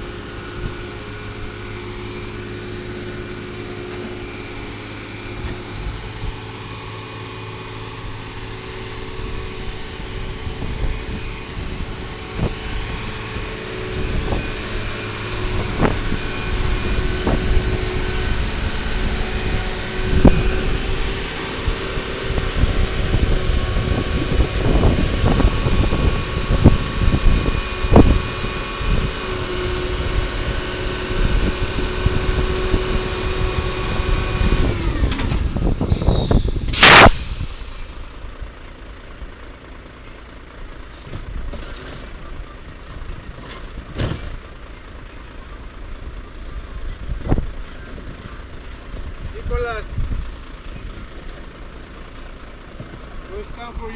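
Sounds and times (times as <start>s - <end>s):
hydraulic whine: 0.0s - 39.8s, 40.7s - 53.9s
diesel garbage truck running: 0.0s - 53.9s
knocks and clunks: 41.0s - 44.6s, 50.7s - 53.3s.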